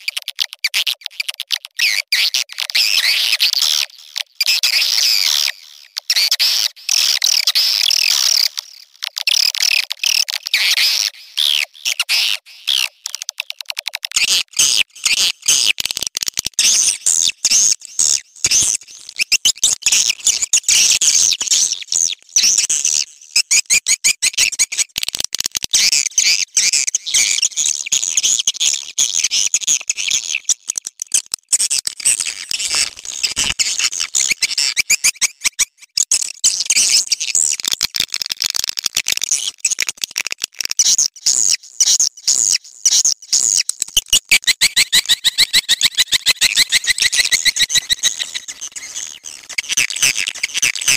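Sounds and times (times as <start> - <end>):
swiftlet chirping chatter: 44.8 - 49.1.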